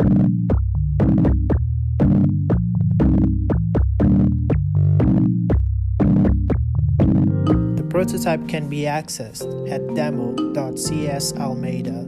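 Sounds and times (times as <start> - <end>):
synthesized drum hits: 0.0 - 7.9
low synth bass notes: 0.0 - 8.4.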